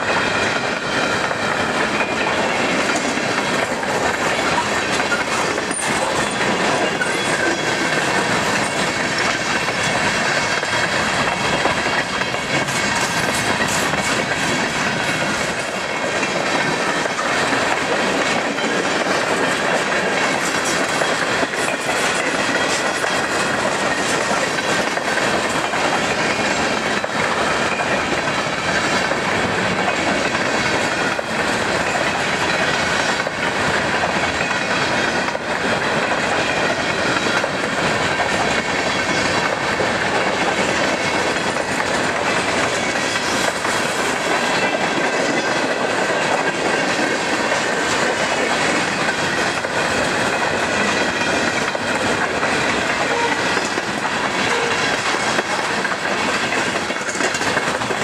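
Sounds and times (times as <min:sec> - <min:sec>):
steel wheels on rail: 0:00.0 - 0:58.0
wheels clicking over rail joints: 0:00.0 - 0:58.0.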